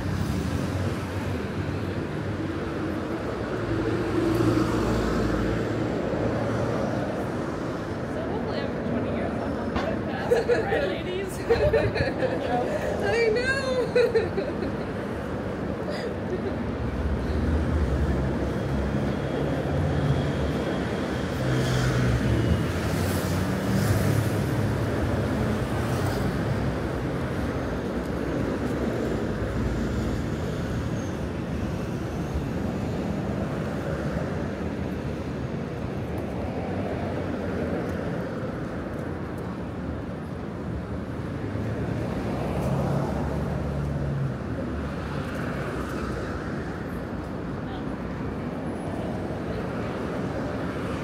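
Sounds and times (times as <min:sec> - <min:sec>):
city street traffic hum: 0:00.0 - 0:51.0.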